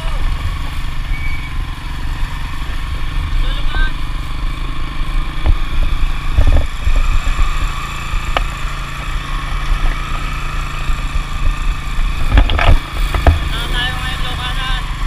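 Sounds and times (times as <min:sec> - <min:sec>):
small engine running: 0:00.0 - 0:15.0
low thumps: 0:11.0 - 0:13.8.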